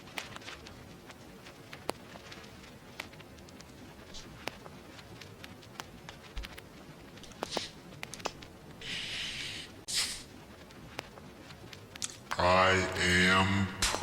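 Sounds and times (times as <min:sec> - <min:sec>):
vinyl record crackle: 0:00.0 - 0:14.0
short bursts of hiss: 0:08.8 - 0:10.3.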